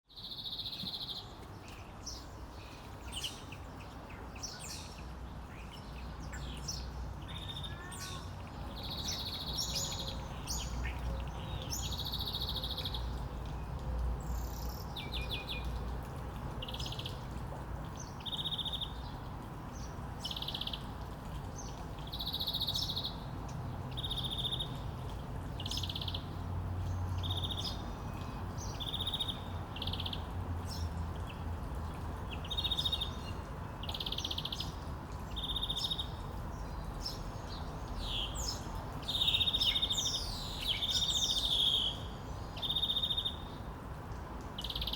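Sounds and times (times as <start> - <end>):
wild birds chirping and trilling: 0.2 - 13.2.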